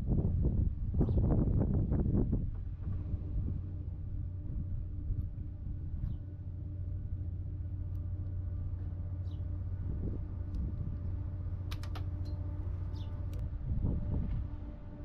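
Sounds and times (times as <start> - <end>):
low engine-like hum: 0.0 - 15.0
sharp clicks: 11.7 - 12.4.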